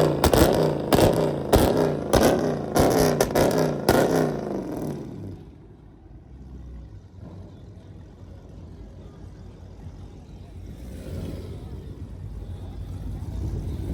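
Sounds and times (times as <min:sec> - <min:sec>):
sharp exhaust cracks: 0:00.0 - 0:05.4
car engine revving: 0:00.0 - 0:08.0, 0:10.4 - 0:13.9
low engine rumble: 0:00.0 - 0:13.9.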